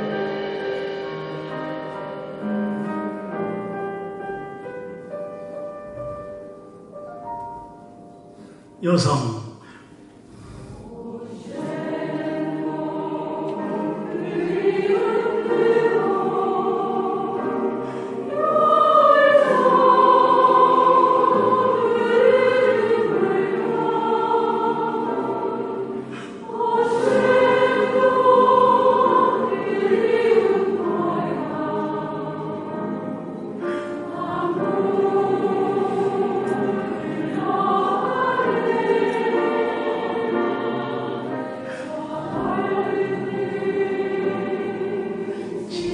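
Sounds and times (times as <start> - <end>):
women's choir singing: 10.4 - 45.9.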